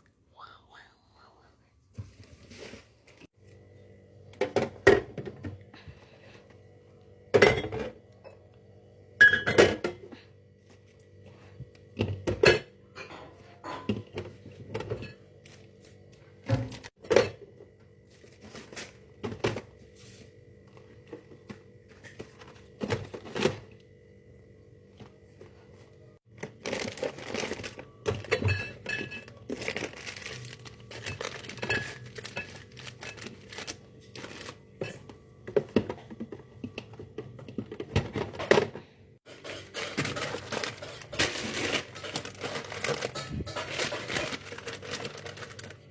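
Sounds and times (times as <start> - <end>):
plastic crinkling: 26.3 - 34.8, 39.3 - 45.9.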